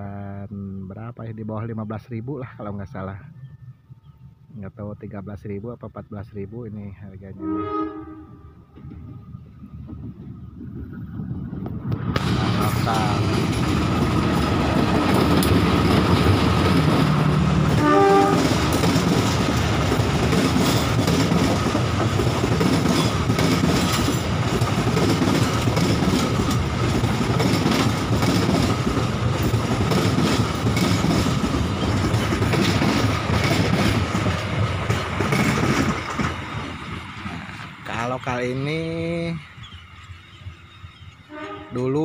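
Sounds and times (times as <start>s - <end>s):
train horn blast: 7.4s - 8.8s, 17.7s - 18.7s, 41.3s - 42.0s
train wheels clattering: 11.5s - 38.3s.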